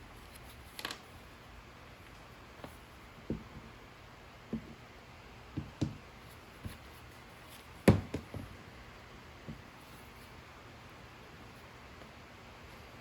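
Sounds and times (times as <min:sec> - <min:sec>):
wooden parts knocking and tapping: 0:05.6 - 0:06.0, 0:07.8 - 0:08.5.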